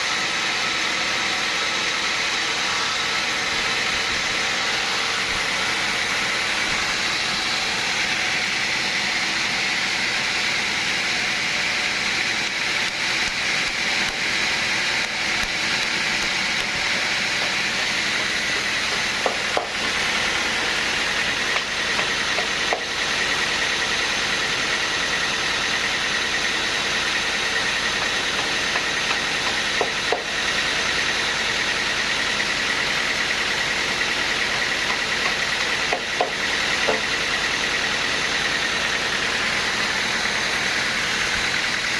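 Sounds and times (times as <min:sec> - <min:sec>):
sawmill machinery hiss and whine: 0:00.0 - 0:41.9.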